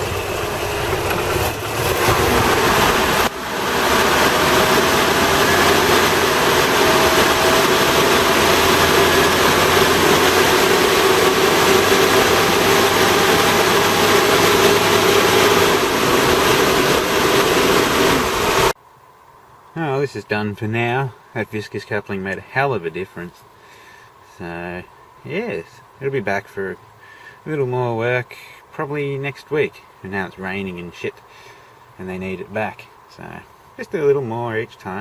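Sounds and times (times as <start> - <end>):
engine cooling fan rushing: 0.0 - 18.8
van engine running: 0.0 - 18.8.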